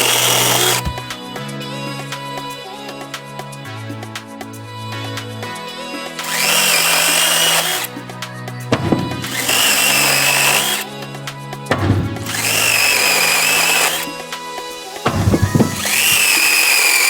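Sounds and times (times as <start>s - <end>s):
chainsaw whining: 0.0s - 1.1s, 6.2s - 7.9s, 8.8s - 10.9s, 11.8s - 14.1s, 15.1s - 17.0s
background music: 0.0s - 17.0s.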